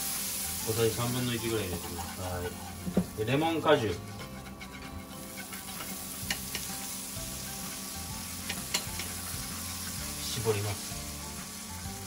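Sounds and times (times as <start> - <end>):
garlic sizzling in butter: 0.0 - 12.0.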